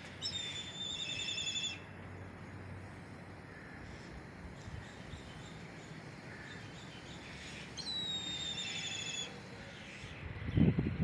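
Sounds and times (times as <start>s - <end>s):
low steady wind noise: 0.0s - 11.0s
bird long whistled call: 0.2s - 1.8s, 7.2s - 10.2s.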